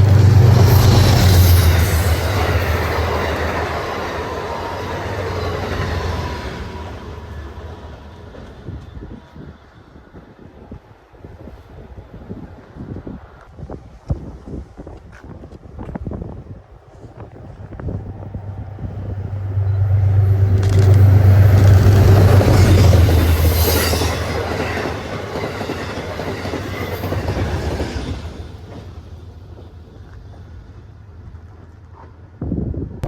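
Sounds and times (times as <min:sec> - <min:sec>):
passenger train passing: 0:00.0 - 0:32.8
wheels on rails: 0:16.9 - 0:32.2.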